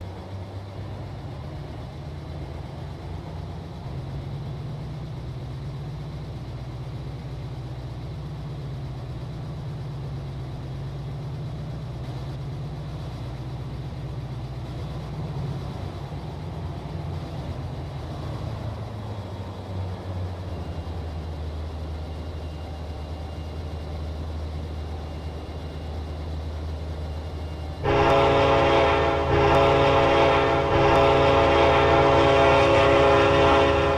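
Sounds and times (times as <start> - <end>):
diesel locomotive engine rumbling: 0.0 - 33.9
locomotive air horn: 27.8 - 33.9.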